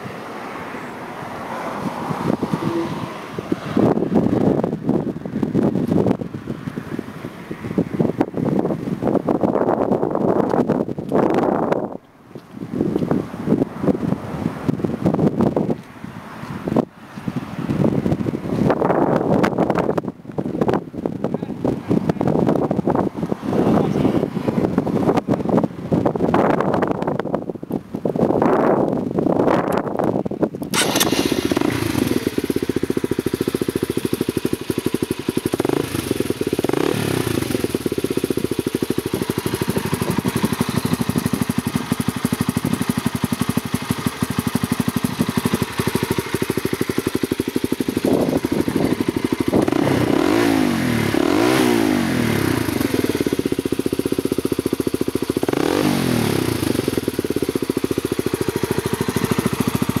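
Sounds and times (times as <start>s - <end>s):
motorcycle engine idling: 30.6s - 60.0s
engine revving: 30.7s - 33.0s, 35.4s - 38.0s, 48.0s - 53.5s, 55.3s - 57.2s.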